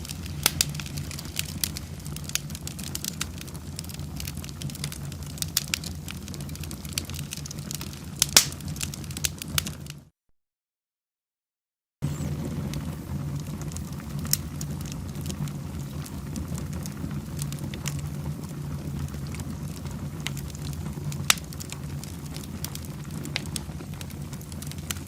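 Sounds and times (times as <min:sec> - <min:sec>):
fire crackling and popping: 0:00.0 - 0:10.1, 0:12.0 - 0:25.0
fire rumbling: 0:00.0 - 0:10.1, 0:12.0 - 0:25.0.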